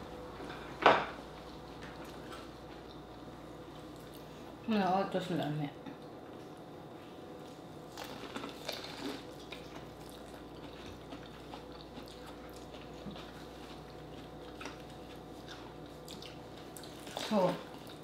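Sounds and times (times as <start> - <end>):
corn on the cob chewed: 8.0 - 18.0.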